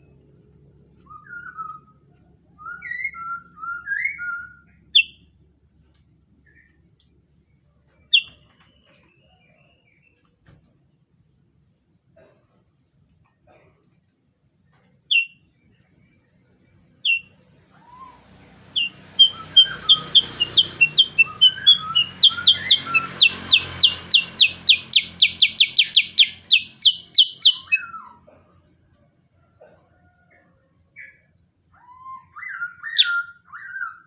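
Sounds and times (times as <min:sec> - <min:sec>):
bulbul singing: 0:02.6 - 0:05.3, 0:08.0 - 0:10.1, 0:15.1 - 0:15.5, 0:17.0 - 0:28.3.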